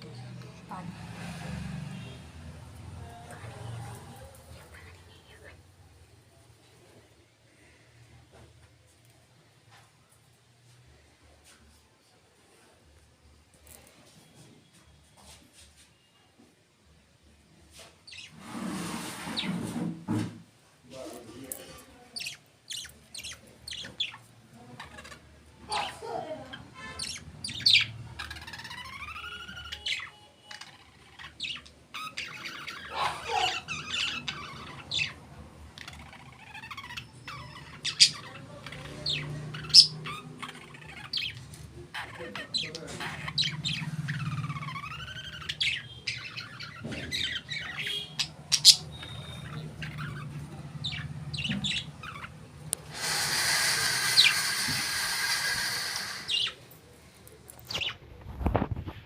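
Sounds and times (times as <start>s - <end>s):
parrots chirping and squawking: 18.0s - 19.9s, 21.1s - 56.7s, 57.6s - 58.8s.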